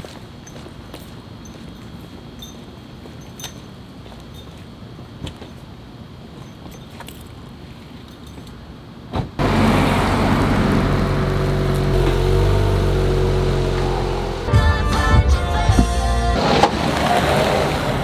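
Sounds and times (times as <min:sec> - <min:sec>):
car engine starting and running: 0:09.4 - 0:18.0.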